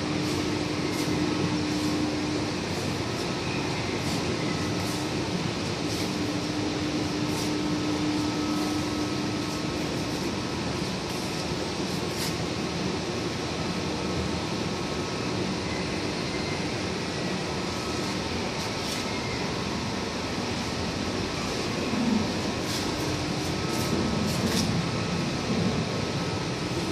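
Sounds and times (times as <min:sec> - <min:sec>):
ice machine humming: 0:00.0 - 0:16.3.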